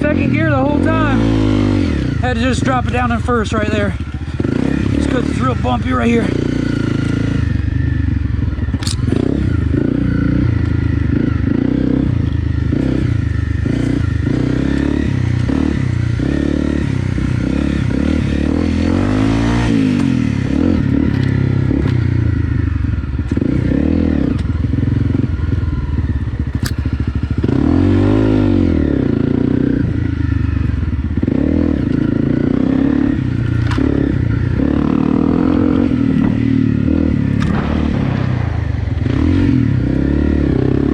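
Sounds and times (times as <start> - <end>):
motorcycle engine revving: 0.0 - 40.9
bike knocks and rattles: 36.0 - 38.6.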